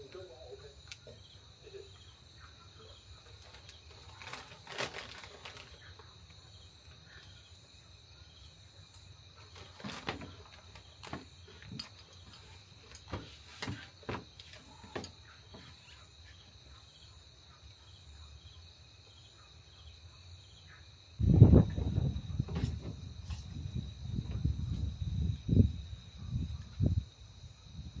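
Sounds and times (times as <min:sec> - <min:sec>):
insects chirring: 0:00.0 - 0:28.0
knocks and rustles of handling: 0:03.2 - 0:06.1, 0:09.4 - 0:16.1, 0:22.4 - 0:23.6.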